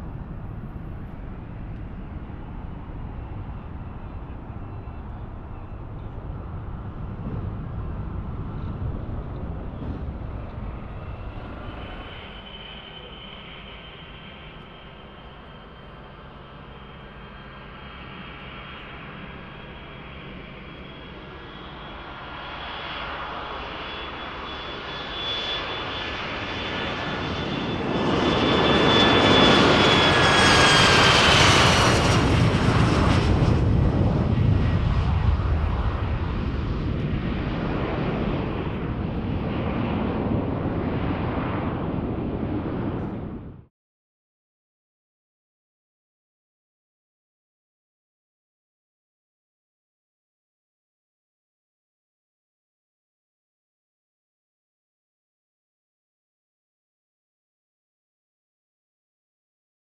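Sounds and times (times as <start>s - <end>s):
aircraft engine passing by: 0.0s - 43.7s
high-pitched engine whine: 0.0s - 43.7s.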